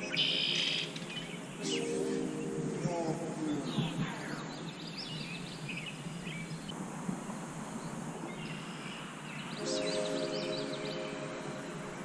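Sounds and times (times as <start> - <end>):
chord of held tones: 0.0 - 4.3, 9.6 - 12.0
small birds chirping: 0.0 - 6.8, 7.6 - 12.0
outdoor background hiss: 0.0 - 12.0.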